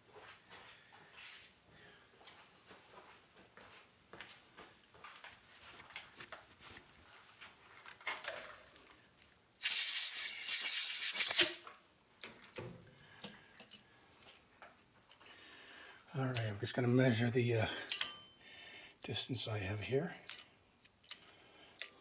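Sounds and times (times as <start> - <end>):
compressed air blow gun hiss: 9.6 - 11.6.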